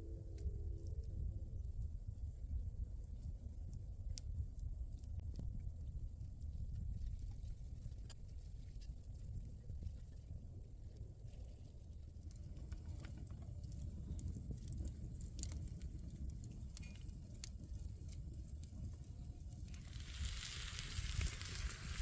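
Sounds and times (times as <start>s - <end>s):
low rumble: 0.0s - 3.3s
fire crackling and popping: 0.4s - 22.0s
steady hiss: 19.7s - 22.0s.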